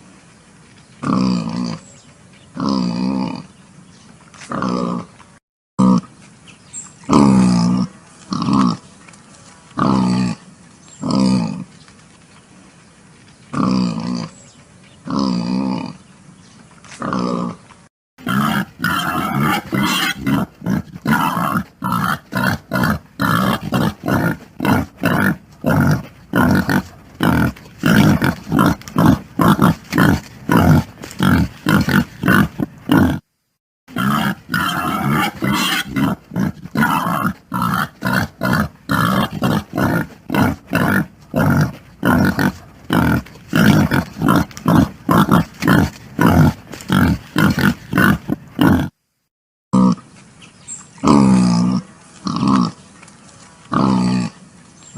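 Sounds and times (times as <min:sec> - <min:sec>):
pig grunting: 0:01.0 - 0:01.8, 0:02.6 - 0:03.5, 0:04.4 - 0:05.1, 0:05.8 - 0:06.1, 0:07.1 - 0:08.8, 0:09.8 - 0:10.4, 0:11.0 - 0:11.7, 0:13.5 - 0:14.4, 0:15.0 - 0:16.0, 0:16.9 - 0:17.6, 0:18.2 - 0:33.2, 0:33.9 - 0:49.0, 0:49.8 - 0:50.0, 0:51.0 - 0:52.8, 0:53.7 - 0:54.4.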